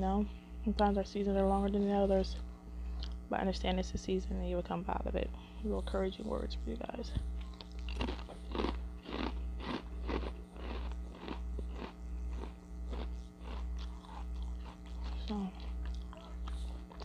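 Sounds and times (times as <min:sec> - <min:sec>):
low pulsing hum: 0:00.0 - 0:17.0
chewing crisp chips: 0:07.3 - 0:17.0.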